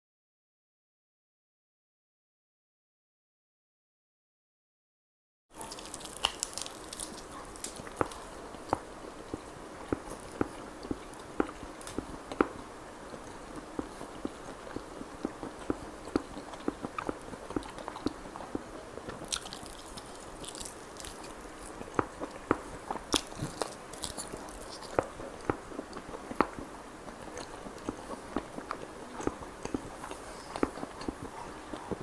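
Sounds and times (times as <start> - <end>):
crunchy bites: 5.6 - 26.7
wet chewing and biting: 5.6 - 32.0.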